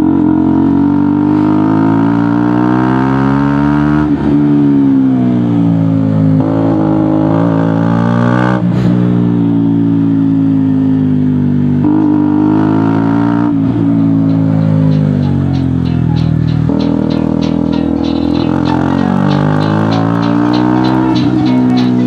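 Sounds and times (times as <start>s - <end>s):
motorcycle engine shifting gears: 14.2s - 22.0s.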